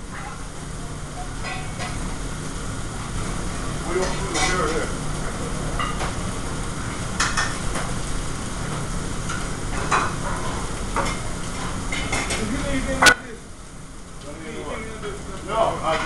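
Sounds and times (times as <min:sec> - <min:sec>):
food sizzling: 0:00.0 - 0:16.0
pans and utensils clinking: 0:01.2 - 0:02.0, 0:03.9 - 0:04.9, 0:05.7 - 0:06.2, 0:07.2 - 0:07.8, 0:09.3 - 0:13.2.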